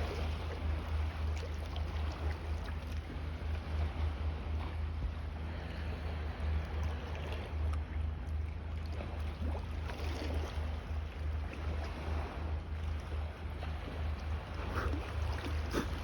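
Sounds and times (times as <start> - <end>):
steady low rumble: 0.0 - 16.0
water lapping and splashing: 0.0 - 16.0.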